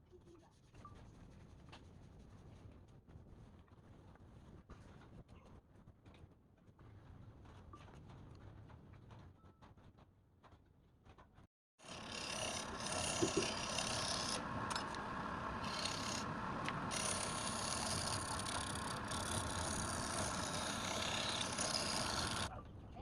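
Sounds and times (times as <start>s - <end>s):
tool rasping wood: 11.8s - 22.5s.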